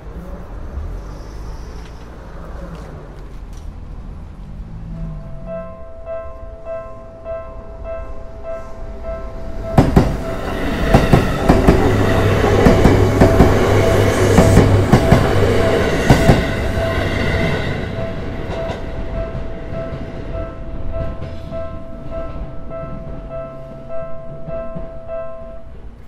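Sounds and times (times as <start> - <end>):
level crossing warning bell: 4.9 - 26.0
train wheels clacking over rail joints: 9.8 - 20.2.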